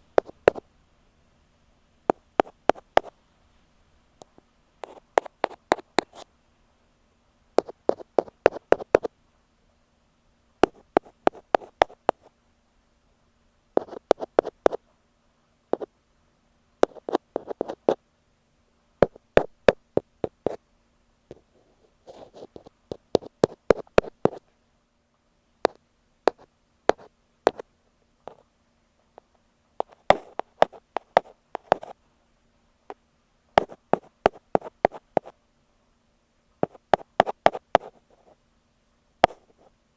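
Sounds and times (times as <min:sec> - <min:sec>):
rapid sharp taps on microphone: 0:00.2 - 0:00.6, 0:02.1 - 0:03.1, 0:04.2 - 0:06.3, 0:07.6 - 0:09.1, 0:10.6 - 0:12.3, 0:29.2 - 0:31.9, 0:33.6 - 0:35.3, 0:36.6 - 0:37.9, 0:39.2 - 0:39.6.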